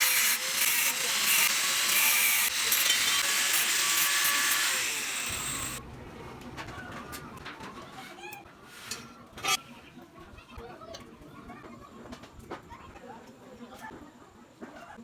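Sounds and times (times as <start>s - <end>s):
welding arc hissing and crackling: 0.0s - 5.8s.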